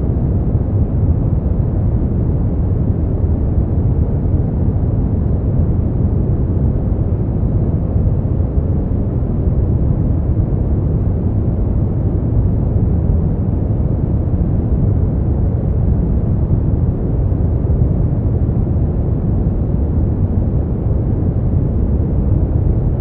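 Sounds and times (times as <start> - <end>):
deep rumbling brown noise: 0.0 - 23.0.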